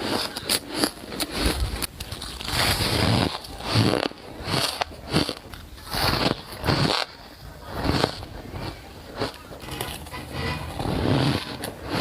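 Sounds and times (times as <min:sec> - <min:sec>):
ice being bitten and crunched: 0:00.0 - 0:10.1.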